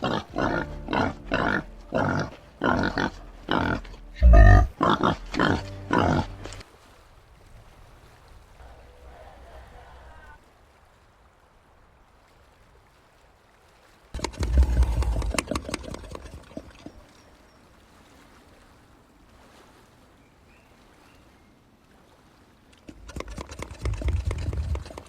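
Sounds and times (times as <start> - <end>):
peccaries clicking and knocking: 14.2 - 16.9, 22.8 - 25.0.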